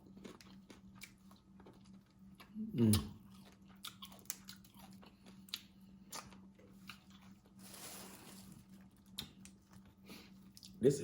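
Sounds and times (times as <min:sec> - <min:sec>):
chewing clicks and smacks: 0:00.1 - 0:07.3, 0:09.1 - 0:09.9.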